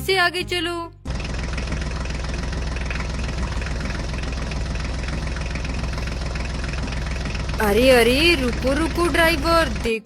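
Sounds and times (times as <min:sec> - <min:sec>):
tractor engine idling: 0:01.0 - 0:10.0.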